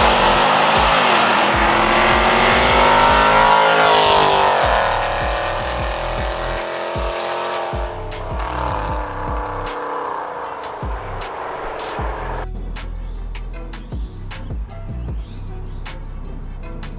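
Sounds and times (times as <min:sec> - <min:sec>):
car engine revving hard: 0:00.0 - 0:12.4
background music with steady beat: 0:00.0 - 0:16.9.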